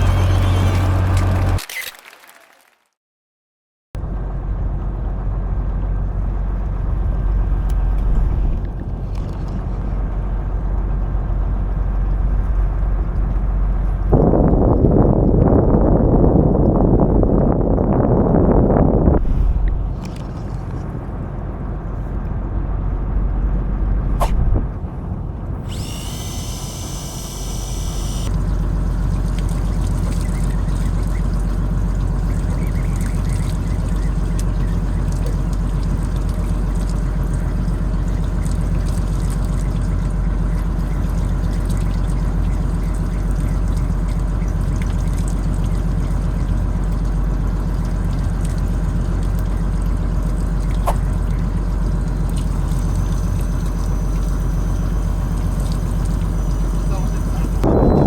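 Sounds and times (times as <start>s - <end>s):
boat engine rumble: 0.0s - 1.6s, 4.0s - 58.0s
sharp click: 24.2s - 24.5s.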